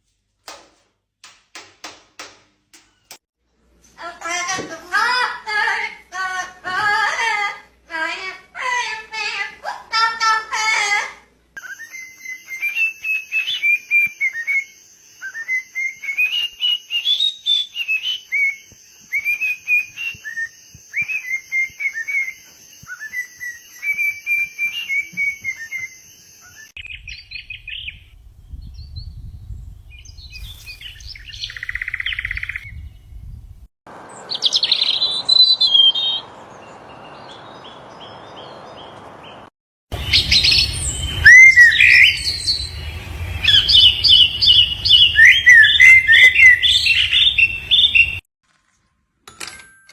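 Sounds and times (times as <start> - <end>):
small birds chirping: 11.7 - 33.5, 34.1 - 48.2
low rumble: 40.0 - 48.2.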